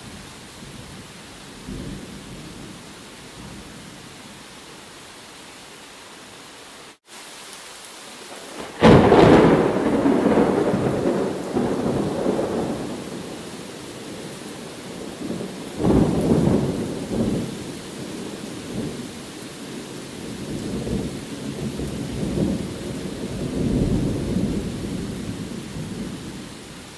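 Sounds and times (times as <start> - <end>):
steady rain: 0.0 - 26.9
thunder rolling: 8.5 - 13.3.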